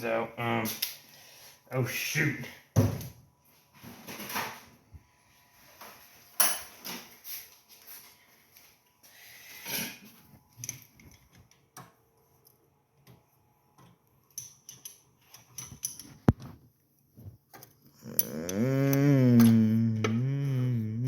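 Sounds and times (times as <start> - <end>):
small metal clicks and taps: 13.8 - 16.5.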